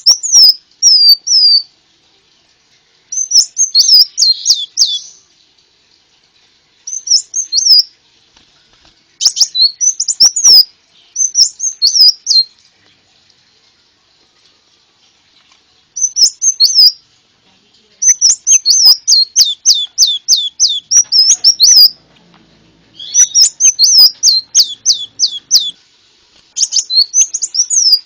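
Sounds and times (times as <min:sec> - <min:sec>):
bird twittering song: 0:00.0 - 0:01.7, 0:03.1 - 0:05.3, 0:06.8 - 0:07.9, 0:09.2 - 0:12.5, 0:16.0 - 0:17.0, 0:18.0 - 0:22.0, 0:22.9 - 0:25.8, 0:26.5 - 0:28.0.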